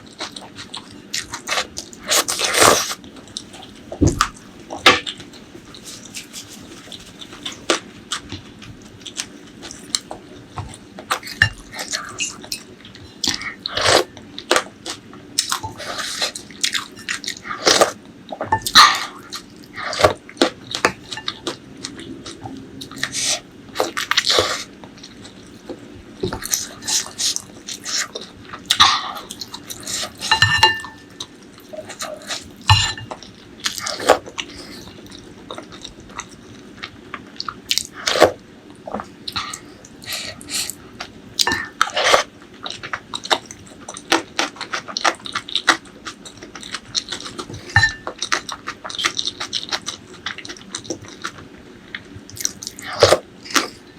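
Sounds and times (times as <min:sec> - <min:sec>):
chewing and biting: 0:41.8 - 0:53.8.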